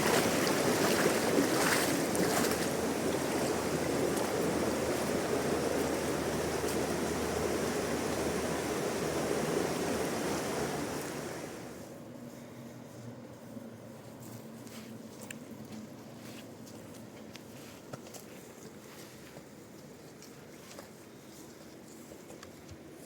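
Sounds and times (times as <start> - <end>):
river water rushing: 0.0 - 11.8.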